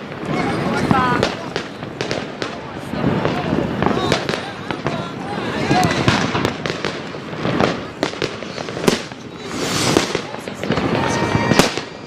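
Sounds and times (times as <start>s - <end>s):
fireworks bangs and crackles: 0.0s - 12.0s
firework whistle: 7.3s - 12.0s.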